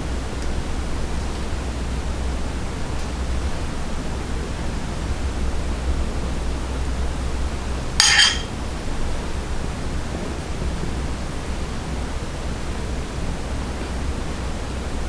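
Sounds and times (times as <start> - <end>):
bright clink: 8.0 - 8.5.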